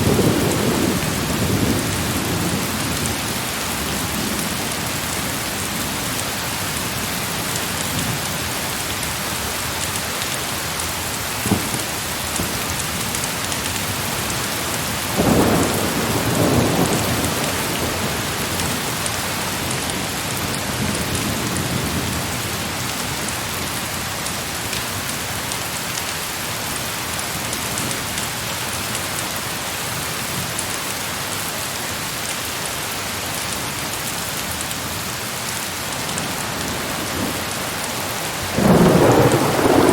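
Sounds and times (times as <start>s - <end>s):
heavy rain: 0.0s - 39.9s
rumble of thunder: 14.9s - 19.0s, 36.6s - 39.9s
thunder crack: 36.7s - 39.9s.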